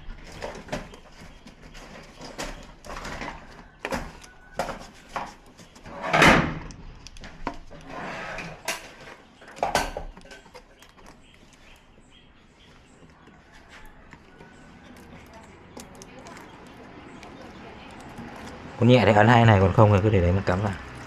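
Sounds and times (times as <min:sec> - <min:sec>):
light clicks and knocks of tools: 0:13.0 - 0:18.6.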